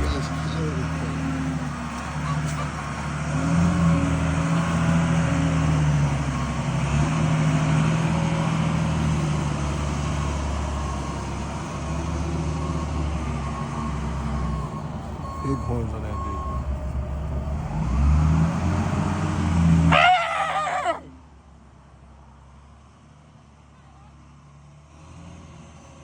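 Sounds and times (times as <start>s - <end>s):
car engine running: 0.0s - 19.1s
road noise: 0.0s - 26.0s.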